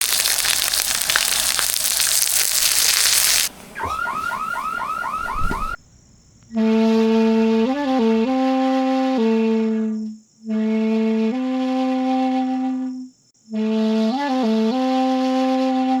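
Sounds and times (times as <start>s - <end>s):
loud hiss: 0.0s - 3.8s
alarm-like warbling tone: 3.8s - 5.8s
held woodwind-like note: 3.8s - 5.8s, 6.5s - 16.0s.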